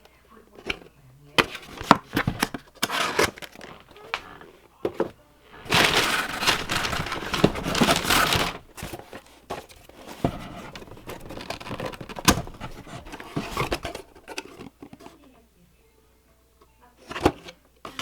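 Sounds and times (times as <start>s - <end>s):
packaging tearing and crinkling: 5.6s - 9.2s, 10.4s - 14.5s.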